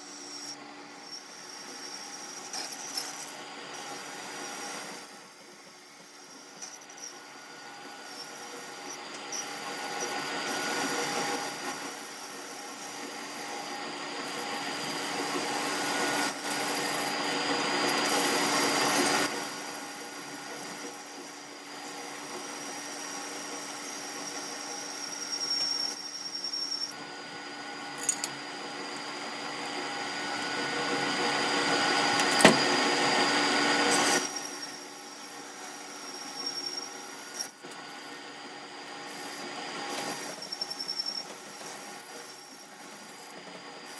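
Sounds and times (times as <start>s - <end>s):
machine tool humming and squealing: 0.0s - 43.9s
metal cutting or grinding: 27.9s - 28.4s.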